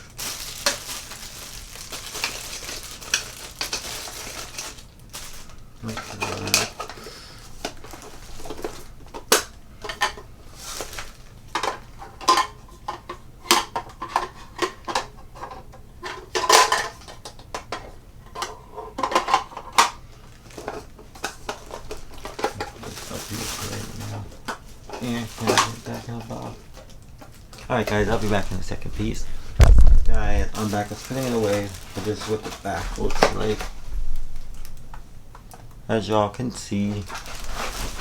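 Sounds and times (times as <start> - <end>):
hard parts clinking and clattering: 11.6 - 23.8.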